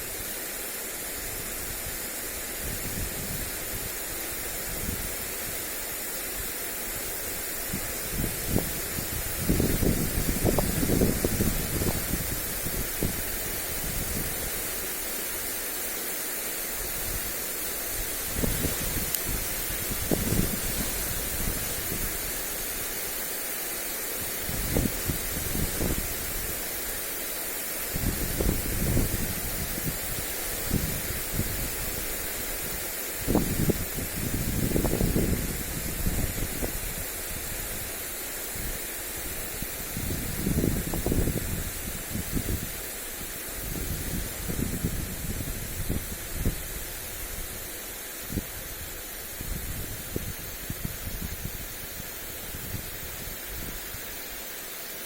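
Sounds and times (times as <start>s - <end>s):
sprinkler spray hissing: 0.0s - 55.0s
wind buffeting microphone: 7.7s - 14.6s, 18.0s - 22.4s, 24.3s - 26.6s, 27.9s - 37.9s, 38.6s - 42.8s, 43.5s - 47.7s, 48.3s - 54.0s.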